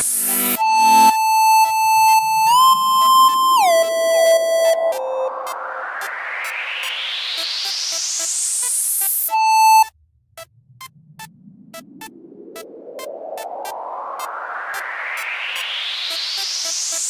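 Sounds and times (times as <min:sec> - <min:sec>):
rising synth noise sweep: 0:00.0 - 0:01.3, 0:03.7 - 0:09.8, 0:10.7 - 0:17.0
loud sustained synth tone: 0:00.0 - 0:01.6, 0:02.6 - 0:07.3.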